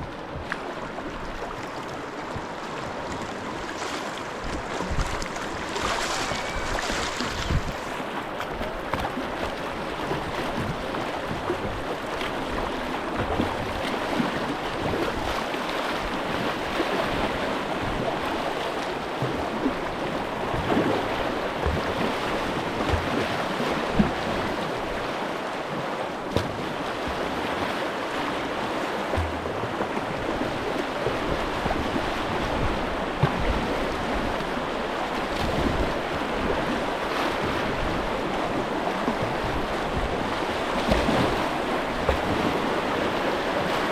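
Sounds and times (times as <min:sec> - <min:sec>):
river rushing: 0:00.0 - 0:10.6.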